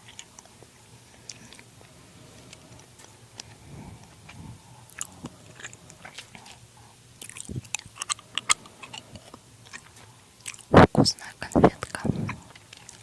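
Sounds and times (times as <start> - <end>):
soft crackles and clicks: 7.2 - 13.0.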